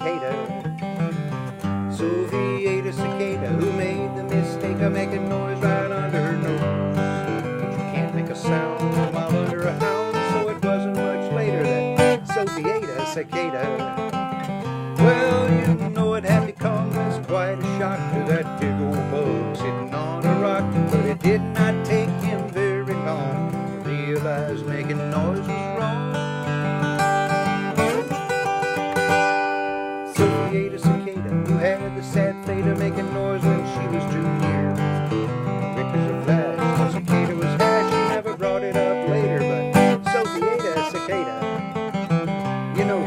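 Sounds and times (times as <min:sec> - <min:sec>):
strummed acoustic guitar: 0:00.0 - 0:43.0
bass: 0:14.5 - 0:28.2, 0:30.1 - 0:40.2.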